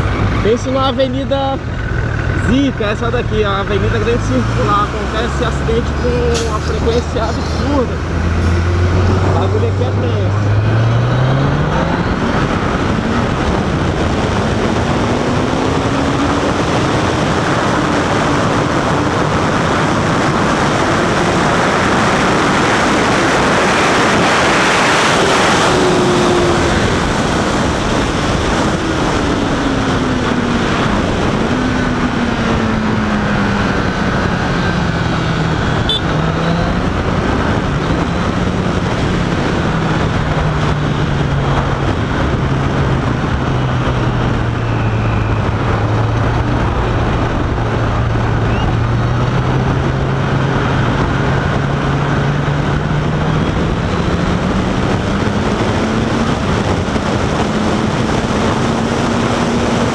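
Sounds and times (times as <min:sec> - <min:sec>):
motorcycle engine: 0:00.0 - 0:59.9
wind and road noise: 0:00.0 - 0:59.9.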